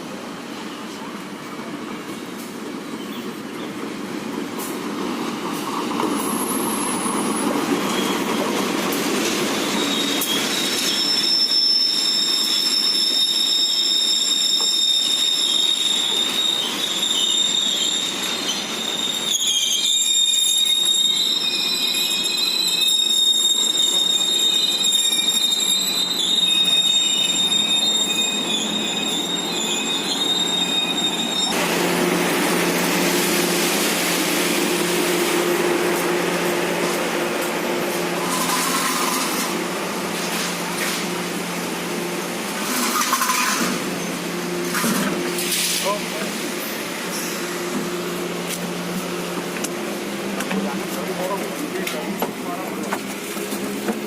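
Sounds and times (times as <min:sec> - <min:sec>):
wheel and brake squeal: 0:06.1 - 0:08.6, 0:09.3 - 0:31.6, 0:38.2 - 0:39.6, 0:42.5 - 0:46.3
train rumble: 0:23.4 - 0:54.0.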